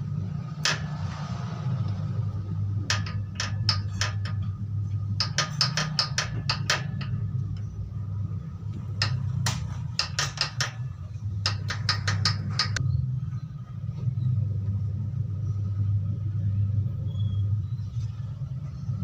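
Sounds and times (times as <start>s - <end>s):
hammer tapping on metal: 0.5s - 12.8s.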